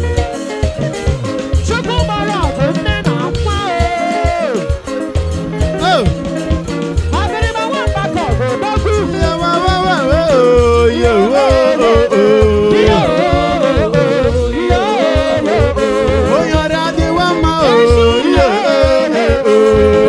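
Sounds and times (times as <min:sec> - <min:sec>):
bass line: 0:00.0 - 0:20.0
steady beat: 0:00.0 - 0:20.0
person singing long sliding notes: 0:05.7 - 0:20.0.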